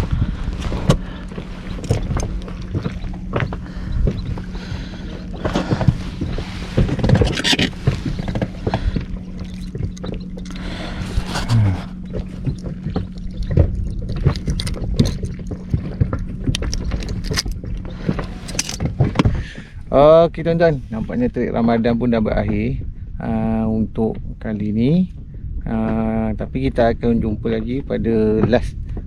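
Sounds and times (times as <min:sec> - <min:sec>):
steady low hum: 0:00.0 - 0:29.0
knocks and handling noises: 0:13.6 - 0:19.3.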